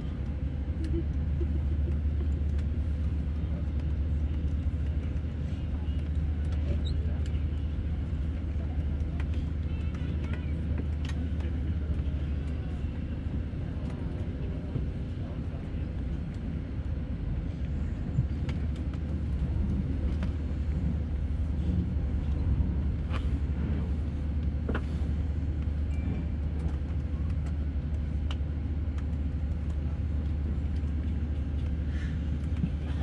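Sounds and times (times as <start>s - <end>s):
aircraft cabin rumble: 0.0s - 33.0s.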